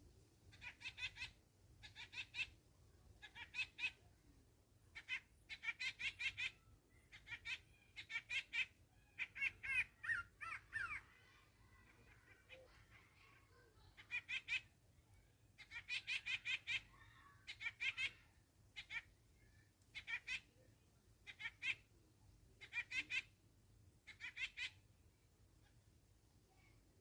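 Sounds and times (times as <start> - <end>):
bird laugh-like calls: 9.2 - 13.3.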